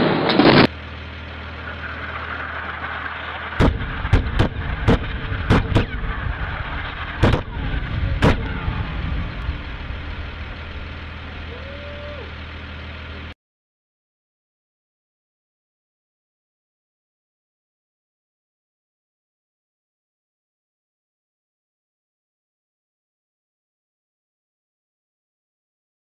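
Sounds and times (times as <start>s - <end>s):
loud blast of noise: 0.0s - 13.4s
low rumble: 0.0s - 13.4s
sharp bangs: 1.7s - 11.3s.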